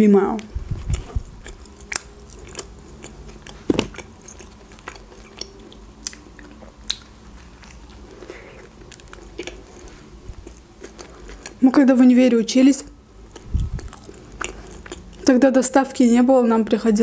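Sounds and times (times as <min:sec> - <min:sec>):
biting and chewing burger: 0:00.8 - 0:11.6, 0:13.3 - 0:15.3
sharp mouth clicks: 0:06.9 - 0:07.1.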